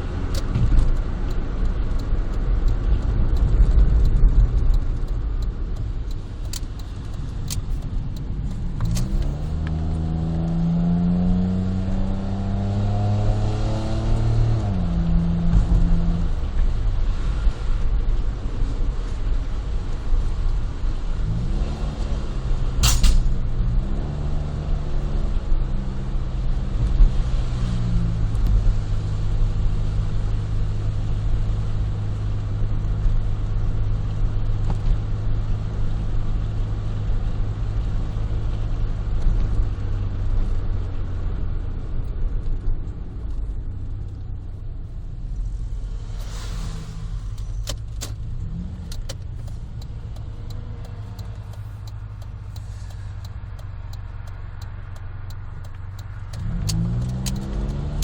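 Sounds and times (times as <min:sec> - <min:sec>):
car engine droning: 0:00.0 - 0:58.0
sharp click: 0:06.1 - 0:09.8, 0:22.8 - 0:23.4, 0:46.2 - 0:48.2, 0:48.8 - 0:58.0.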